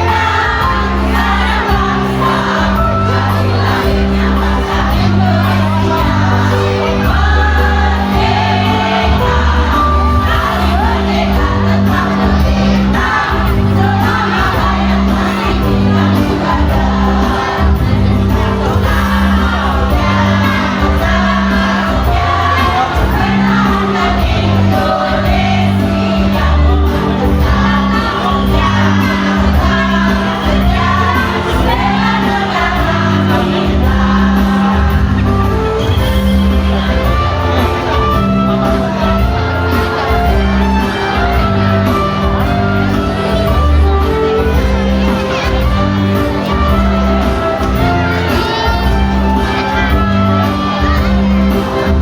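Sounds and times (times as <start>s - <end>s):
bass rhythm: 0.0s - 40.8s
amplified backing music: 0.0s - 52.0s
choir singing: 0.0s - 52.0s.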